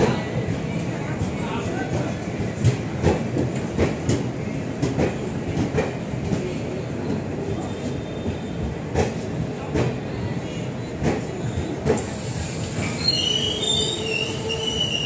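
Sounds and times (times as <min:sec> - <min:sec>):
train rumble: 0:00.0 - 0:15.0
train wheels clacking over rail joints: 0:01.2 - 0:06.5.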